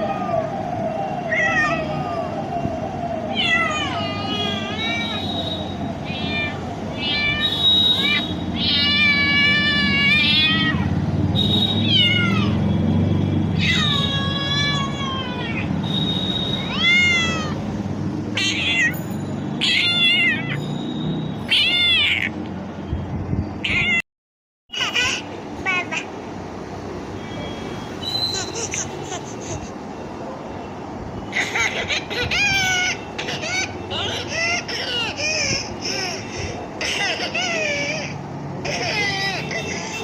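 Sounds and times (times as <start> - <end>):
cat meowing: 1.3 - 2.2, 3.3 - 5.2, 6.0 - 10.9, 11.8 - 12.6, 13.5 - 15.7, 16.6 - 17.6, 18.4 - 19.0, 19.6 - 20.6, 21.5 - 22.4, 23.6 - 24.0.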